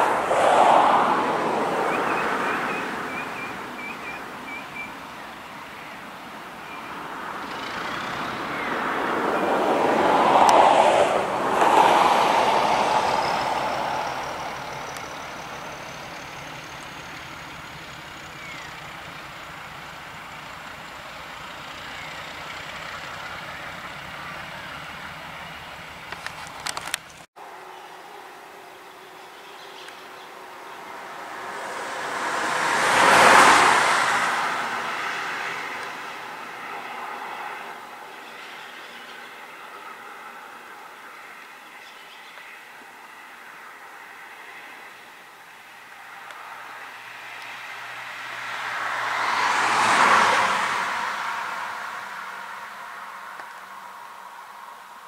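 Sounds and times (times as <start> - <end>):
train passing on track: 0.0 - 4.7, 7.1 - 26.2, 30.7 - 38.1.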